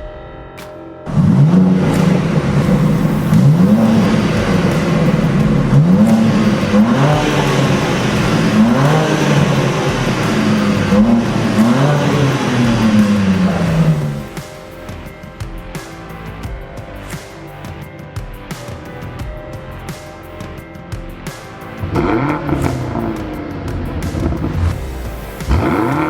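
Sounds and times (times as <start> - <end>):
car engine revving: 1.1 - 16.4, 21.7 - 26.0.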